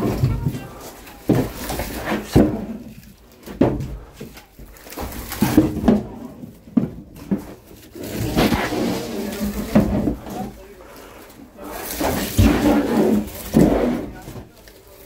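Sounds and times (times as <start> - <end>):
sharp knocks and clunks: 0.0 - 4.4
rustling and handling: 0.0 - 15.0.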